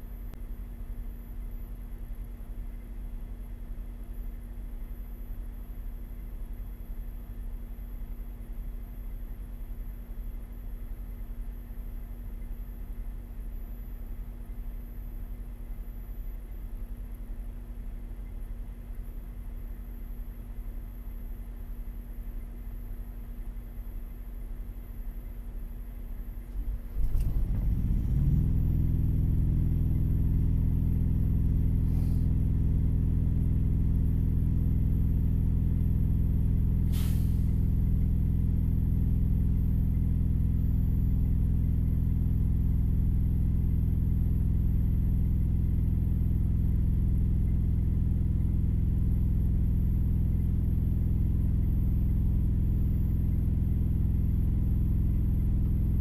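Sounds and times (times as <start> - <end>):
engine cranking and idling: 26.5 - 28.7
sharp click or hiss: 36.9 - 37.5.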